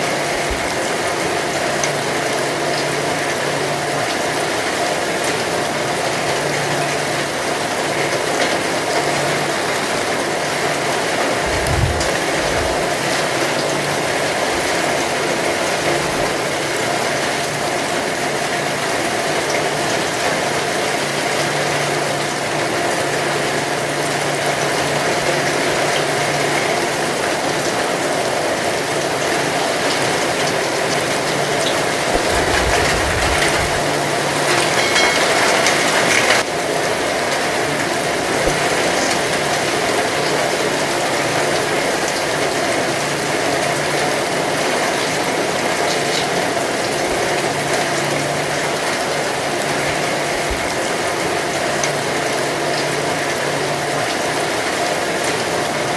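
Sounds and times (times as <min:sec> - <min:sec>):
heavy rain falling: 0:00.0 - 0:55.9
low rumble: 0:11.4 - 0:12.8.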